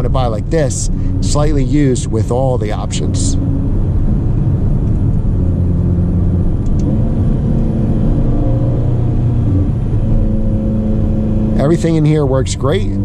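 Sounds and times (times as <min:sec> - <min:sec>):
car engine cruising: 0:00.0 - 0:13.0
road rumble: 0:00.0 - 0:13.0.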